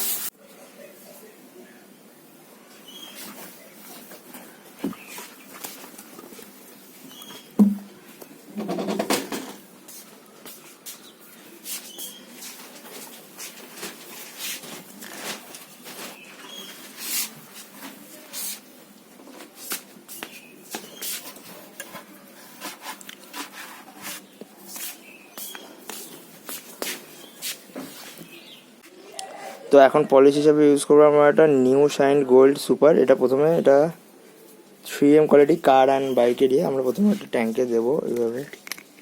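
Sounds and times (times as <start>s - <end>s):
cloth rubbing on motorcycle: 19.4s - 28.6s.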